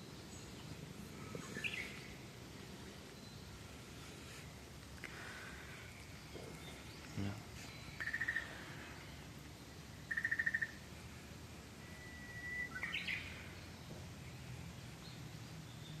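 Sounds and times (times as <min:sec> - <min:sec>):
faint steady hiss: 0:00.0 - 0:16.0
small bird trilling and chirping: 0:01.4 - 0:02.1, 0:05.8 - 0:09.2, 0:10.0 - 0:10.8, 0:12.0 - 0:13.8.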